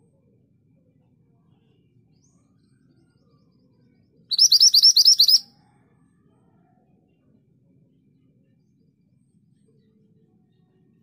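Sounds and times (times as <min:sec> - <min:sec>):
bird calling sharp high notes: 0:04.3 - 0:05.4.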